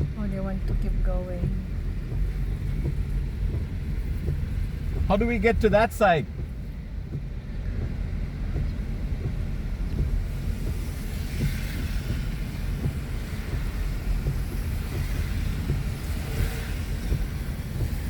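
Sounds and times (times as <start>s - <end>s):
car cabin road and engine rumble: 0.0s - 18.0s.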